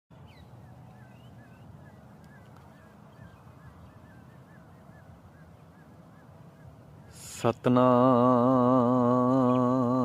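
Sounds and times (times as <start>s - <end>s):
birds chirping faintly: 0.1s - 10.0s.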